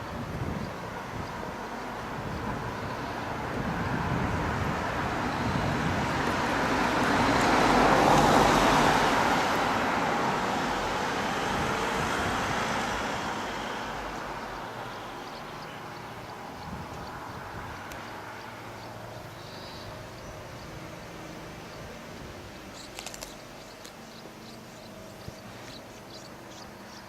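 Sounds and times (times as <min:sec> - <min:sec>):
road vehicle passing by: 0:00.0 - 0:27.0.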